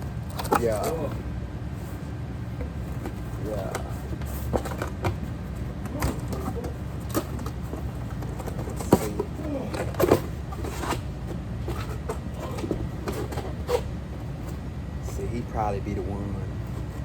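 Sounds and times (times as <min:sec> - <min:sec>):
faint voice: 0:03.4 - 0:04.0.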